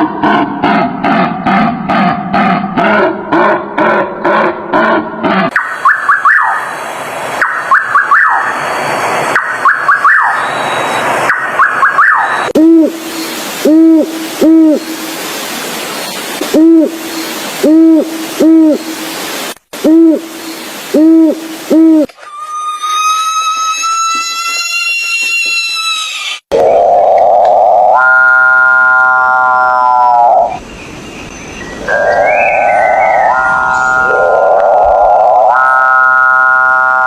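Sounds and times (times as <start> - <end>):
harsh hissing noise: 12.5 - 22.1
steady hiss: 12.6 - 22.1
owl hooting: 16.5 - 18.9, 19.8 - 20.3, 20.9 - 23.3.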